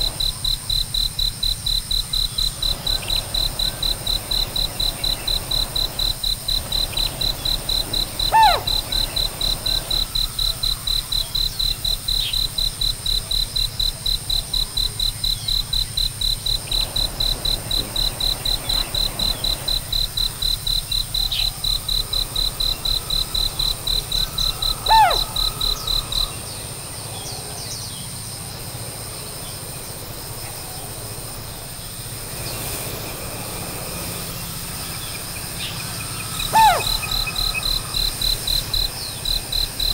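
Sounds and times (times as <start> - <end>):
faint scattered chirps: 2.7 - 10.8, 22.5 - 26.5, 34.2 - 39.2
loud falling whistled call: 8.2 - 9.1, 24.0 - 26.1, 36.4 - 38.0
high-pitched pulsed chirping: 22.5 - 26.4, 34.4 - 39.3.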